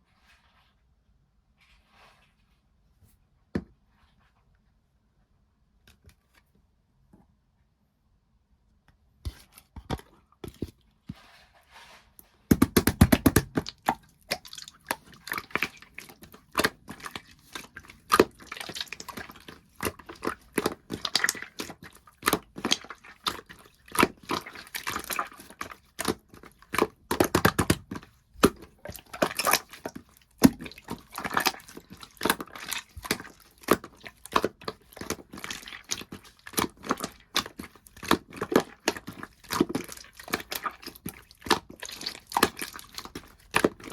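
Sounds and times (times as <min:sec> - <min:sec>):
slime squelching and popping: 0:12.5 - 0:43.9.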